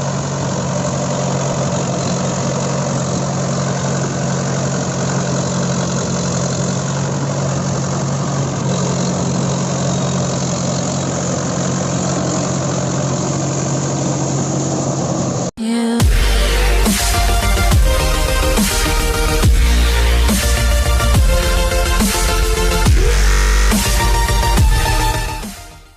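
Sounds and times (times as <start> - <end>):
tractor diesel engine running: 0.0 - 25.9
electronic dance music: 15.6 - 25.9.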